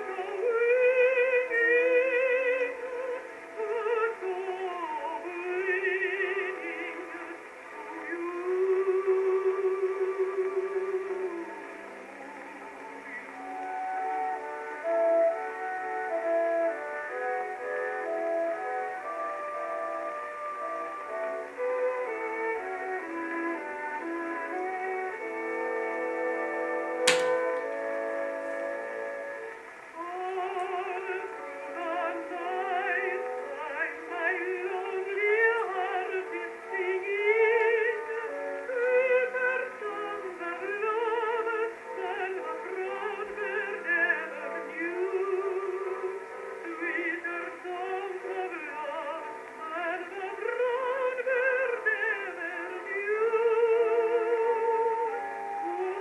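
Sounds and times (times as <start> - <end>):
held accompaniment notes: 27.0 - 29.5.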